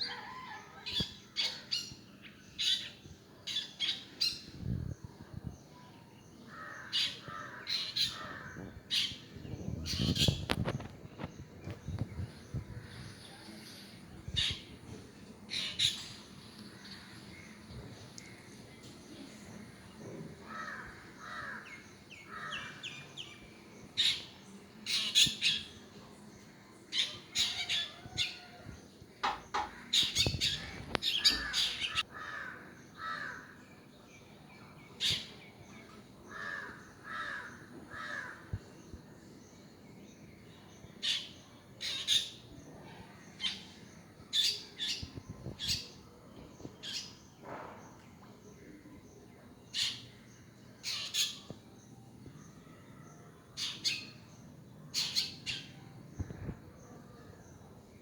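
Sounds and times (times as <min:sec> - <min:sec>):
birds squawking: 0:29.6 - 0:32.5.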